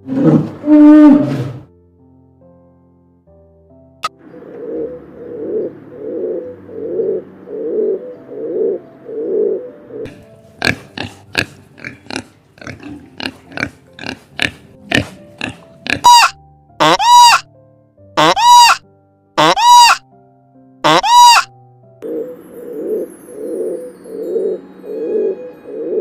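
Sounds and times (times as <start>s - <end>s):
animal grunting calls: 10.6s - 17.4s
sharp short animal calls: 15.9s - 17.4s, 18.2s - 18.8s, 19.4s - 20.0s, 20.8s - 21.5s
high-pitched animal call: 15.9s - 17.5s, 18.2s - 18.8s, 19.4s - 20.0s, 20.8s - 21.5s.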